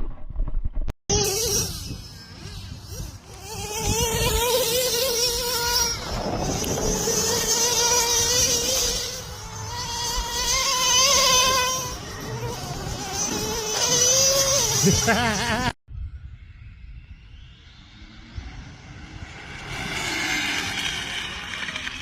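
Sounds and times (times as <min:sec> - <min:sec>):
model motor whining: 0:01.1 - 0:15.5.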